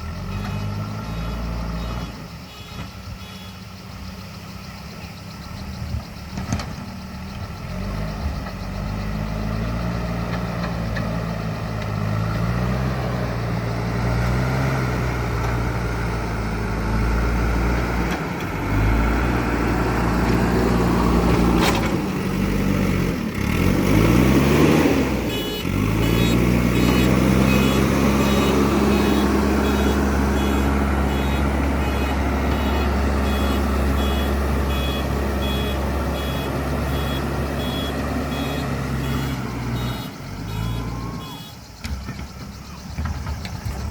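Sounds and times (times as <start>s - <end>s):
backhoe diesel engine revving: 0.0s - 43.9s
reversing alarm beeping: 25.1s - 43.6s.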